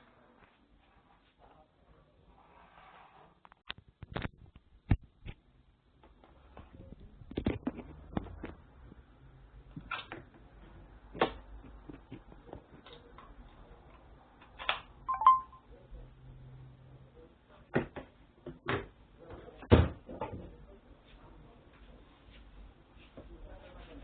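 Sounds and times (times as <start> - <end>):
short tone: 15.1 - 15.7.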